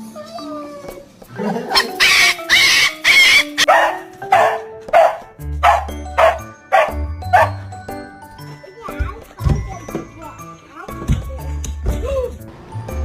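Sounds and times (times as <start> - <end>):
background music: 0.0 - 13.0
dog barking: 3.2 - 7.6.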